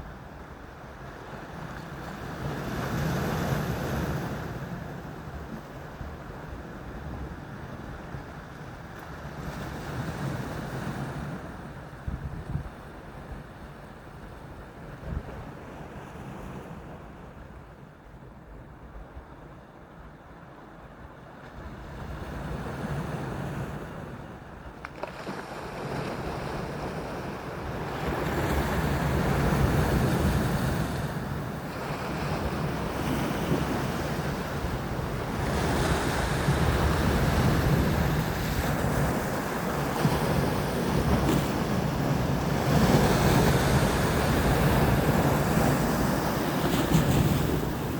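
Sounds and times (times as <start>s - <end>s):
wind rumbling on microphone: 0.0s - 20.2s, 20.8s - 47.9s
waves washing onto shore: 21.2s - 47.9s.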